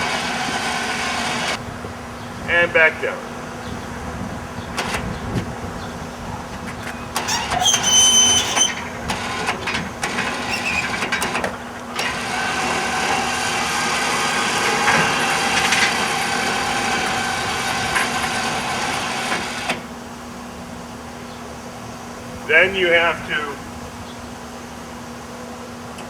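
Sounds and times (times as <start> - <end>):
electric winch whining: 0.0 - 1.6, 2.7 - 26.0.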